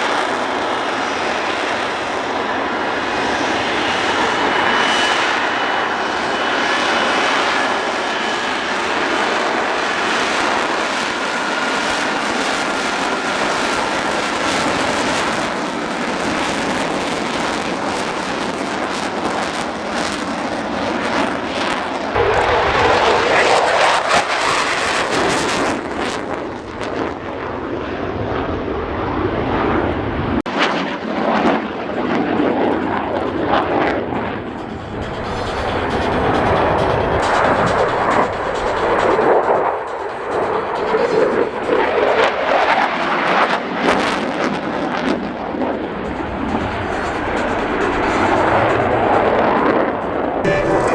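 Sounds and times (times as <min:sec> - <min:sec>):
aircraft engine roar: 0:00.0 - 0:50.9
deeper rumble: 0:33.2 - 0:42.2.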